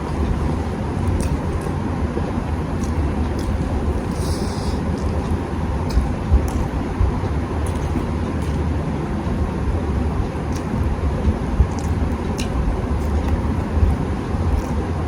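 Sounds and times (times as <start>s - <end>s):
person eating: 0.0s - 1.8s, 2.7s - 6.8s, 7.6s - 8.7s, 10.5s - 10.8s, 11.7s - 14.9s
low background rumble: 0.0s - 15.0s.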